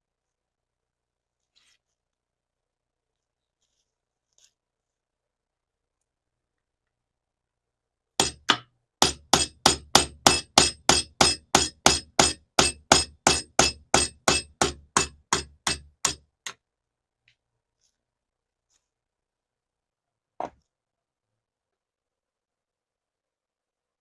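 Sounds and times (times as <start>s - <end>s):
hammer striking metal: 8.2s - 16.2s.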